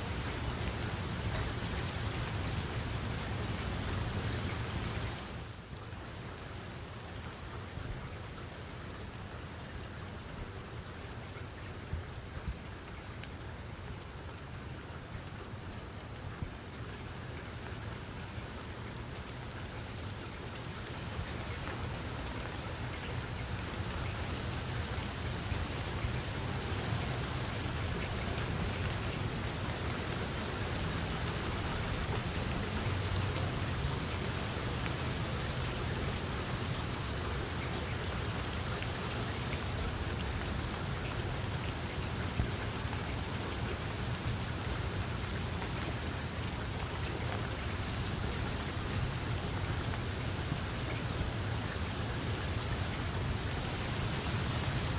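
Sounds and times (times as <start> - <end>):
rain falling: 0.0 - 54.9.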